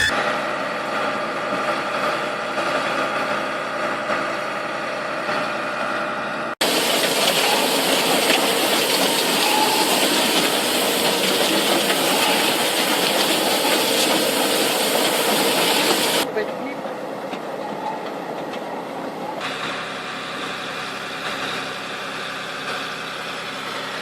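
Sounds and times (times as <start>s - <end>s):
heavy machine engine humming: 4.9s - 24.0s
hissing mechanical rush: 6.6s - 16.3s.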